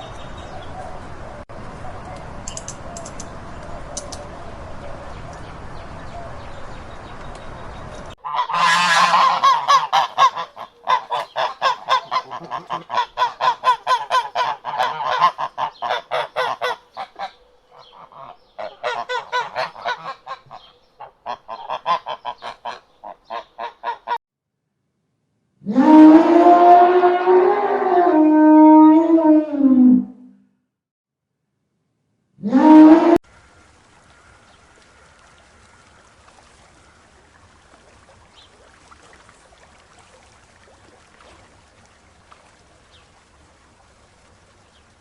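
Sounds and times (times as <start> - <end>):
rapid honking animal calls: 8.2 - 24.2.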